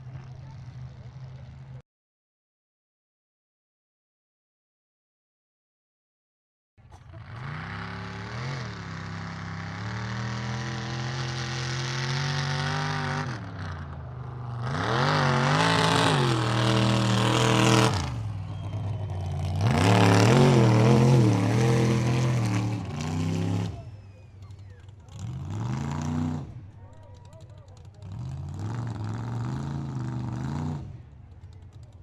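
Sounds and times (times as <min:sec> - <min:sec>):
truck engine revving: 0:06.8 - 0:32.0.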